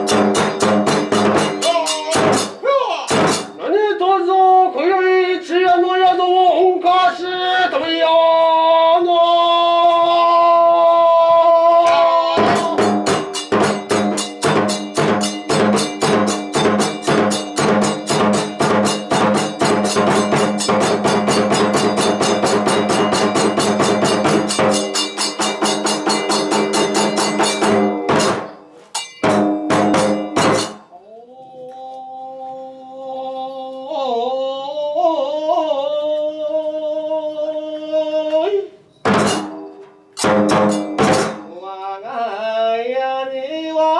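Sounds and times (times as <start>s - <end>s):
drum strokes: 0.0s - 3.6s, 11.8s - 31.0s, 39.0s - 41.6s
hand cymbal strokes: 0.0s - 3.6s, 12.6s - 31.0s, 38.9s - 41.5s.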